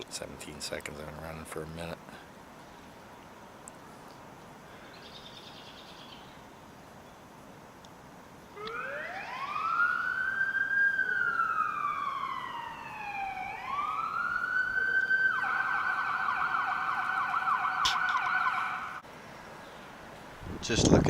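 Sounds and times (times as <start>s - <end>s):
emergency vehicle siren: 8.6s - 19.0s.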